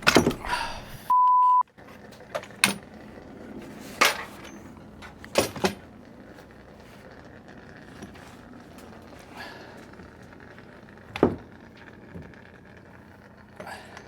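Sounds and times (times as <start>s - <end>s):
censor beep: 1.1s - 1.6s.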